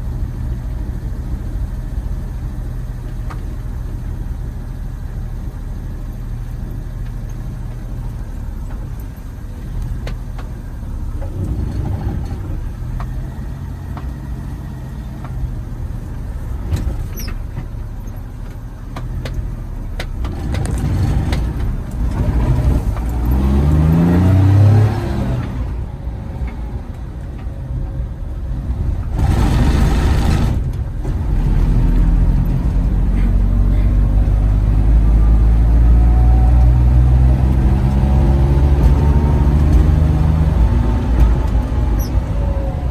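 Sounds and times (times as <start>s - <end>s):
vehicle engine revving: 18.8s - 27.1s, 28.4s - 42.9s.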